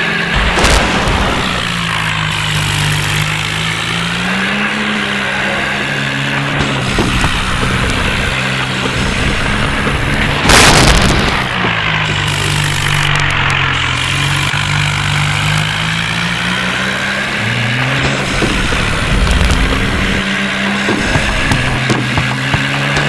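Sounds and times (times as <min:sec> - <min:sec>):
tractor diesel engine running: 0:00.0 - 0:23.0
loud sudden bang: 0:00.4 - 0:03.4.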